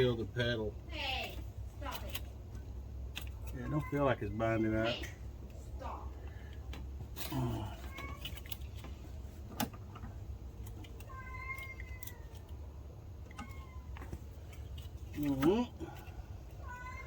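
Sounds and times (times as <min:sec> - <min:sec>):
cat meowing: 0:11.0 - 0:12.6, 0:13.2 - 0:14.2, 0:15.9 - 0:17.0.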